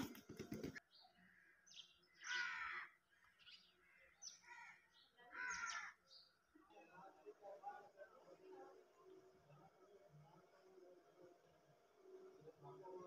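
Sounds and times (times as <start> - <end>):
faint bird calls: 0.0 - 6.3.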